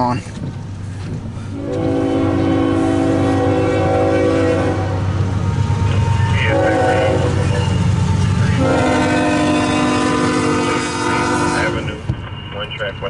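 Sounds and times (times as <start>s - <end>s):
diesel locomotive rumble: 0.0s - 13.0s
locomotive air horn blasts: 1.5s - 5.2s, 6.4s - 7.8s, 8.5s - 12.0s.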